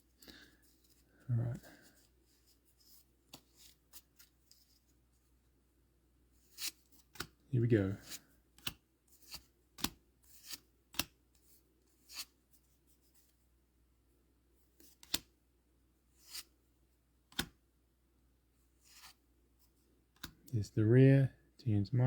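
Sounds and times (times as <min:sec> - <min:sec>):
cards being flicked: 0:06.5 - 0:07.4, 0:08.0 - 0:11.2, 0:14.8 - 0:15.3, 0:16.2 - 0:16.5, 0:17.3 - 0:17.6.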